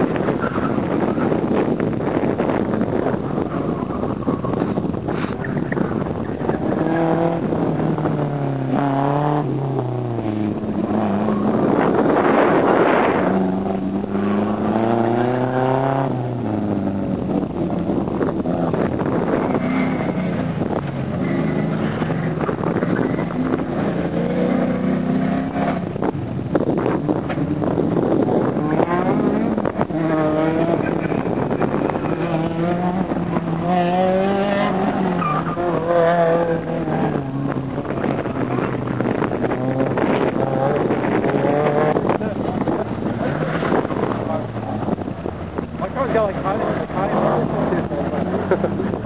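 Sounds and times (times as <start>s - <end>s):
race car engines revving: 0.0s - 49.0s.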